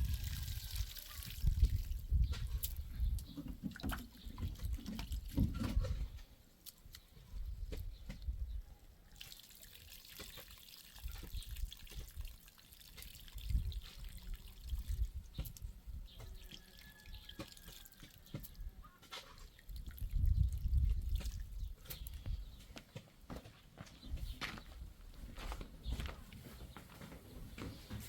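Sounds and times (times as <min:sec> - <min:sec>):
water dripping and trickling: 0:00.0 - 0:05.8, 0:09.1 - 0:22.4.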